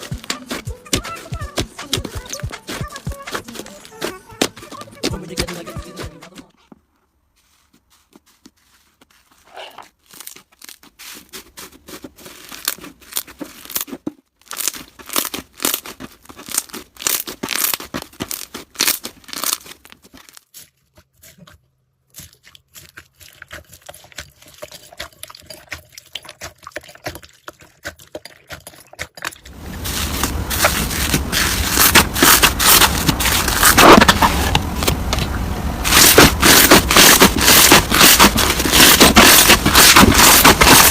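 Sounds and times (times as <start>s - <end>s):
slime crunching: 0.0s - 6.4s, 7.5s - 40.9s
slime crackling and popping: 9.9s - 20.6s, 29.4s - 35.2s, 35.8s - 40.9s.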